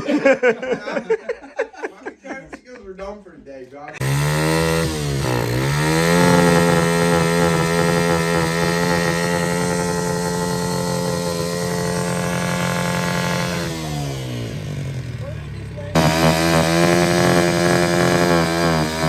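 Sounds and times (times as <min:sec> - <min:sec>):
pit bike engine revving: 0:04.0 - 0:19.0.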